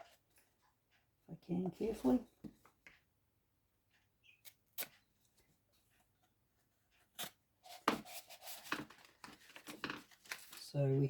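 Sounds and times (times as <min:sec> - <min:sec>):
packaging crinkling: 0:08.9 - 0:10.8.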